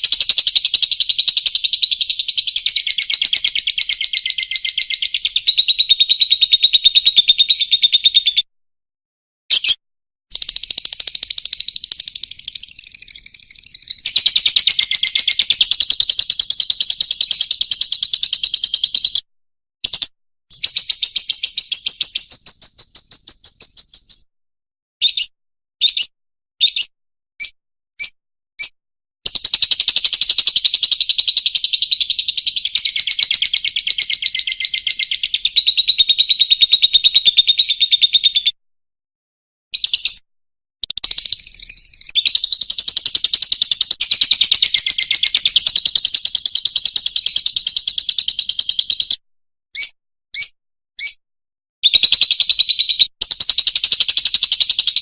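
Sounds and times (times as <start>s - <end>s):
lovebird chattering twitters: 0.0s - 8.0s, 10.4s - 19.2s, 29.3s - 37.9s, 40.8s - 49.1s, 49.8s - 51.2s
short bird chirps: 9.5s - 24.3s, 25.0s - 38.5s, 39.8s - 40.2s, 40.8s - 49.2s, 49.8s - 51.2s, 51.8s - 55.0s.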